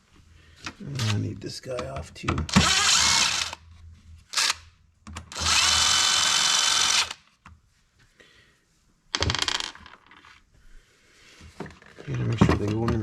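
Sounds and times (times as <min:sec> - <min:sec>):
power drill-driver running: 0:02.5 - 0:03.6, 0:04.3 - 0:04.6, 0:05.3 - 0:07.2.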